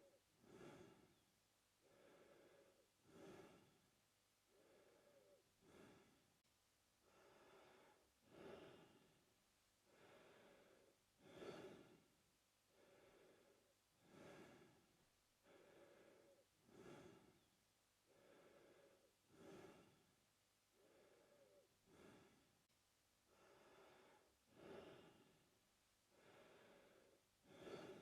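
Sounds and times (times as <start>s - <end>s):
man breathing through mouth: 0.4s - 1.2s, 1.8s - 3.8s, 4.5s - 6.2s, 7.0s - 9.1s, 9.9s - 12.1s, 12.7s - 17.5s, 18.1s - 20.0s, 20.8s - 22.5s, 23.3s - 25.4s, 26.1s - 28.0s.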